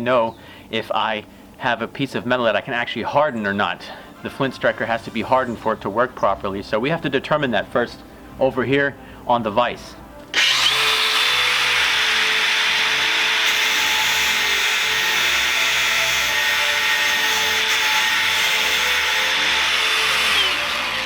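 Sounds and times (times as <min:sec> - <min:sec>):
grinder motor whine: 0:10.3 - 0:21.0
grinder wheel grinding steel: 0:10.3 - 0:21.0.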